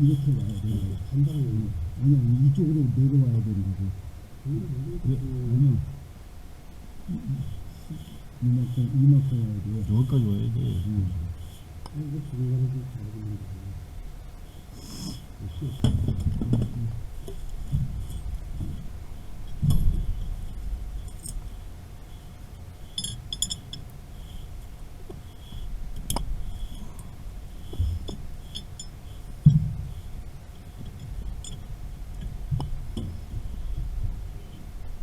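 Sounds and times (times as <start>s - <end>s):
faint steady hum: 0.0s - 35.0s
heavy thumps: 15.7s - 20.6s, 27.6s - 28.6s, 29.3s - 30.0s
metal tools clinking: 23.0s - 23.8s.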